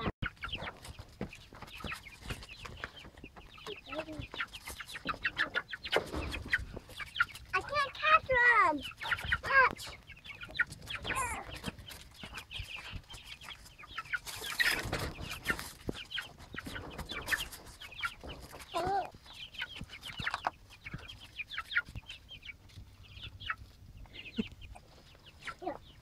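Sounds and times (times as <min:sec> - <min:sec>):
baby chicks peeping: 0:00.0 - 0:26.0.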